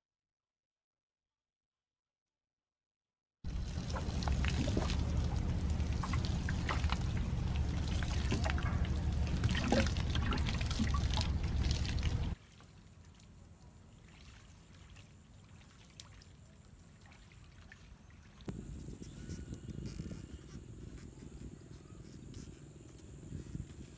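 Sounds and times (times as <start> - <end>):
water pouring and splashing: 3.5 - 18.5.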